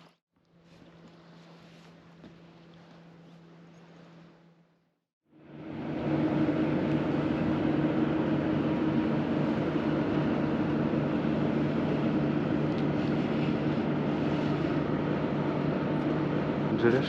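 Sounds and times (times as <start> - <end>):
engine running steadily: 5.3 - 17.0.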